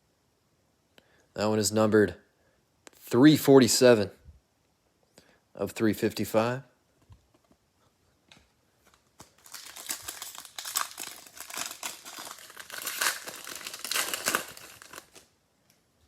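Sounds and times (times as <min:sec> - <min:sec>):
wrapper crinkling: 0:08.8 - 0:15.3.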